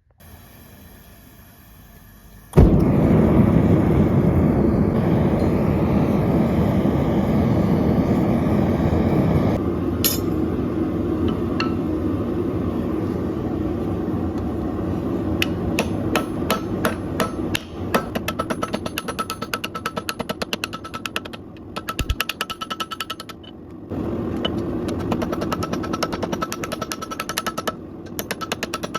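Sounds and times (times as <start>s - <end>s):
loud steady rush of noise: 2.6s - 18.2s
hammer striking steel on anvil: 10.0s - 10.4s, 11.3s - 11.9s, 15.4s - 23.4s.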